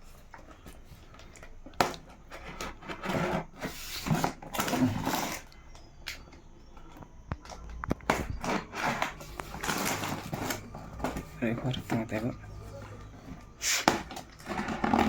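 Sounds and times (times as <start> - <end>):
packaging rustling and knocking: 6.7 - 15.0.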